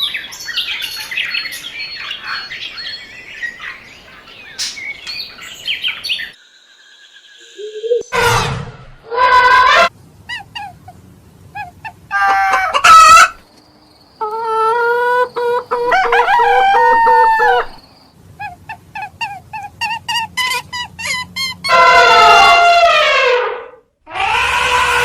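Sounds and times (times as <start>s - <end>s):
chicken clucking: 11.6s - 13.4s, 14.2s - 17.8s
rooster crowing: 12.1s - 13.4s, 14.4s - 17.8s, 21.7s - 23.0s, 24.1s - 25.0s.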